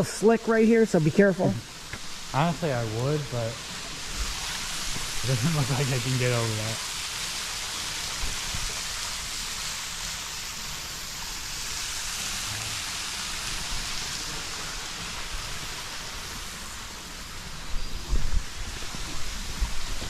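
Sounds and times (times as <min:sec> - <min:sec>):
waterfall pouring and splashing: 0:00.0 - 0:20.0.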